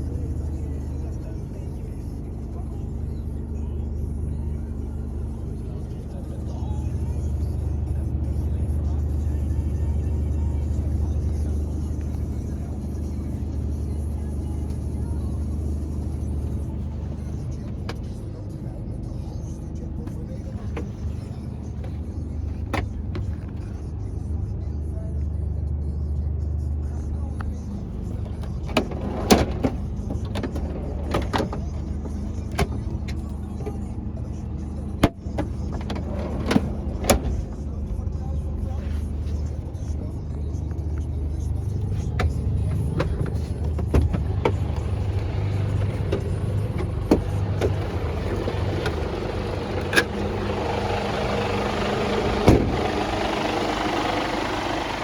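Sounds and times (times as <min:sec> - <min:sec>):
diesel truck engine idling: 0:00.0 - 0:24.6, 0:26.6 - 0:55.0
sharp clicks and knocks: 0:20.1 - 0:23.8, 0:27.9 - 0:33.8, 0:35.0 - 0:37.6, 0:41.8 - 0:50.6.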